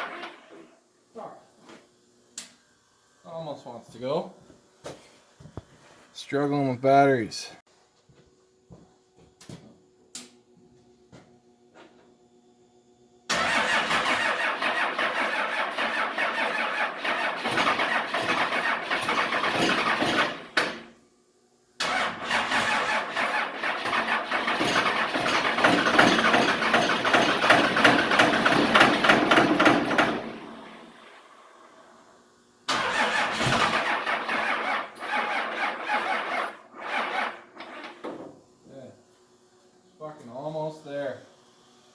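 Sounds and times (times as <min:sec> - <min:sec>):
diesel engine cranking: 0:13.3 - 0:20.8, 0:21.8 - 0:30.8, 0:32.7 - 0:38.0.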